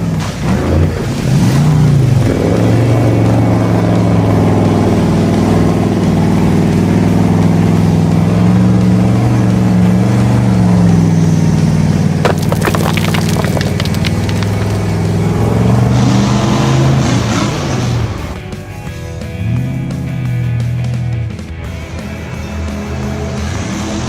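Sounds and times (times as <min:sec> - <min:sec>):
low engine-like drone: 0:00.0 - 0:12.2.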